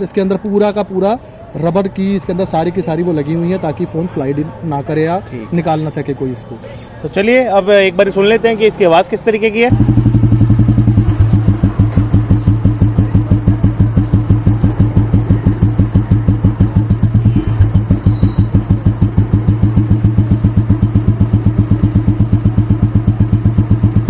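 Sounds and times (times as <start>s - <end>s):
motorcycle engine idling: 9.7s - 24.0s.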